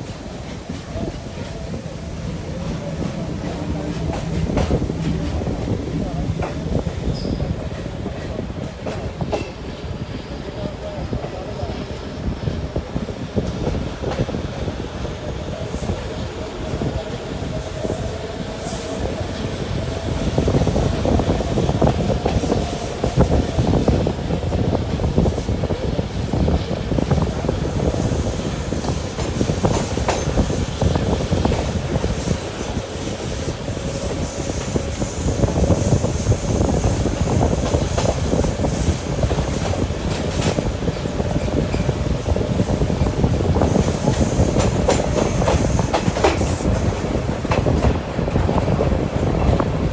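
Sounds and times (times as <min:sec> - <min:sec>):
wheels clacking over rail joints: 0:00.0 - 0:09.7
train rumbling on rails: 0:00.0 - 0:49.9.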